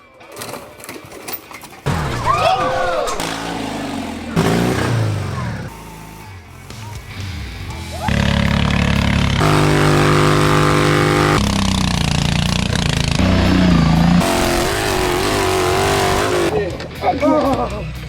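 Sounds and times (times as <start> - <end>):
lawn tractor engine at high revs: 3.1 - 6.2, 8.1 - 16.5.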